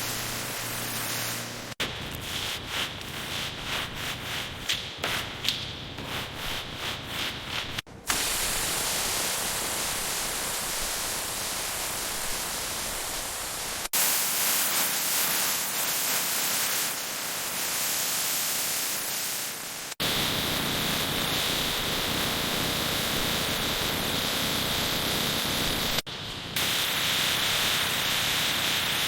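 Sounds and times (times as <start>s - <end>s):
steady hiss of surface-prep tool: 0.0s - 3.9s, 7.6s - 29.0s
hand-sanding strokes: 0.0s - 5.4s, 6.0s - 7.9s.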